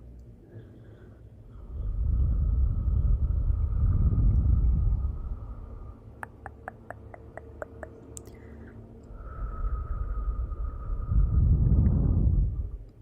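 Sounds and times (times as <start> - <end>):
fire roaring: 1.6 - 6.0.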